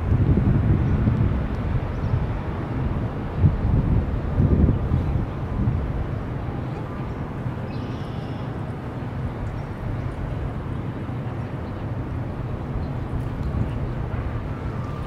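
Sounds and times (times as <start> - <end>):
city background noise: 0.0 - 15.0
distant train rumble: 8.5 - 15.0.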